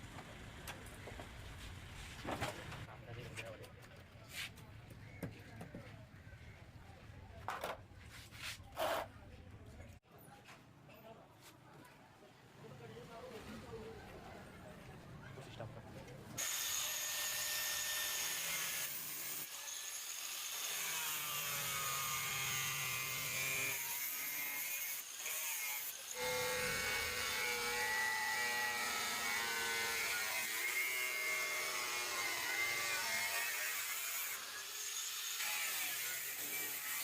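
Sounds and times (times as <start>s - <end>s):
power tool grinding metal: 16.4s - 37.0s.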